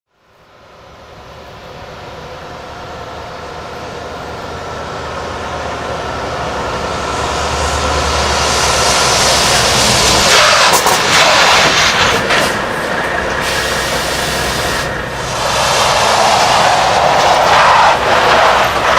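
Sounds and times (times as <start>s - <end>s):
truck engine rumble: 0.2s - 18.9s
hissing rush: 6.8s - 18.9s.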